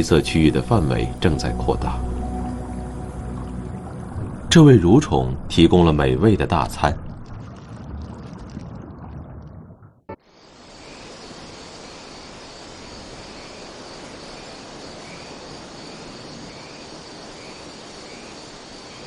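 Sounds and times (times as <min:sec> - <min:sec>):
insects chorus with high drone: 0:00.0 - 0:03.6, 0:10.2 - 0:19.0.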